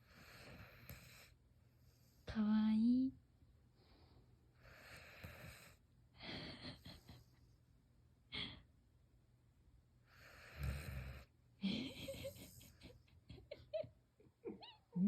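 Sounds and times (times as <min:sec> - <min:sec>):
dog snoring: 0:00.0 - 0:02.1, 0:04.6 - 0:05.8, 0:10.1 - 0:11.3.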